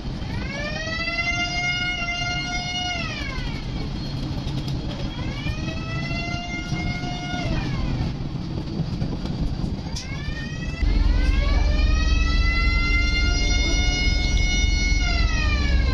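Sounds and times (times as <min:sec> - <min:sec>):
low engine rumble: 0:00.0 - 0:15.9
boat horn blasts: 0:10.8 - 0:15.9.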